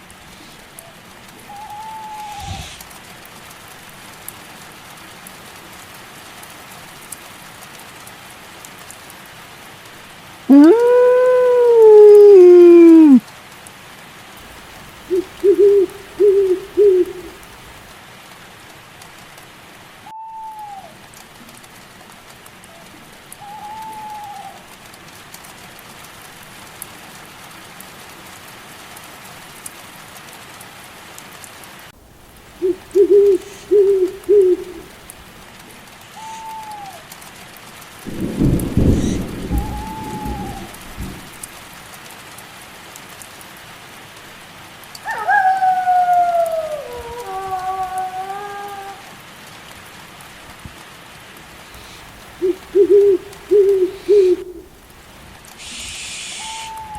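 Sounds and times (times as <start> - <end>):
steady rain: 0.0 - 56.9
owl hooting: 1.4 - 2.9, 10.5 - 13.2, 14.9 - 17.5, 20.1 - 21.0, 23.4 - 24.6, 32.3 - 35.2, 36.1 - 37.0, 38.7 - 40.8, 51.7 - 54.9, 55.6 - 56.9
higher arched owl calls: 1.4 - 3.0, 10.5 - 13.2, 14.9 - 17.5, 20.1 - 21.0, 23.4 - 24.6, 32.2 - 35.2, 36.0 - 37.1, 38.7 - 40.9, 45.0 - 49.0, 51.7 - 56.9
low rumble of thunder: 14.4 - 17.9, 32.1 - 35.4, 38.0 - 41.8, 51.8 - 55.4.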